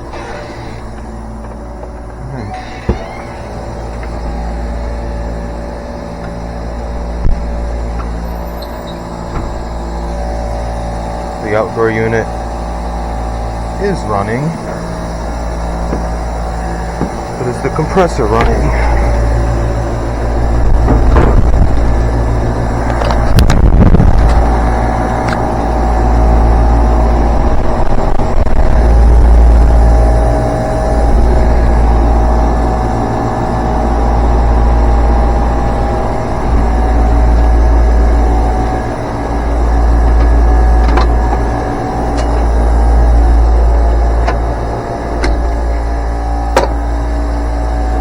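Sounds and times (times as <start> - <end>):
faint steady hum: 0.0 - 48.0
fan motor low rumble: 0.0 - 48.0
knocks: 20.8 - 21.8.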